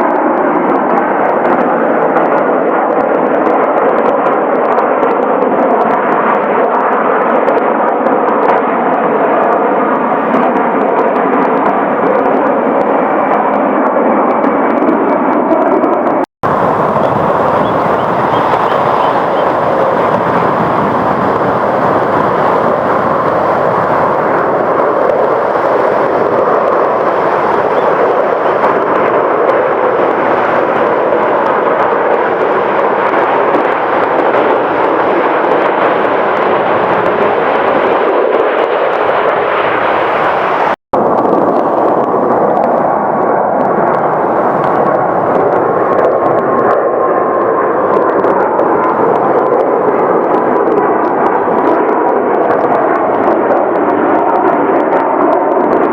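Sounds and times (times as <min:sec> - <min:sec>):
jet engine whine: 0:00.0 - 0:55.9
jet engines running: 0:00.0 - 0:55.9.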